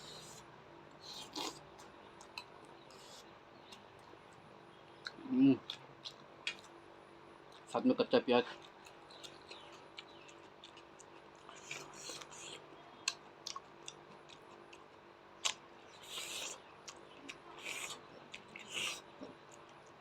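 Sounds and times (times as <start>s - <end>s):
chewing crunchy onion: 0.0s - 7.7s, 8.4s - 20.0s.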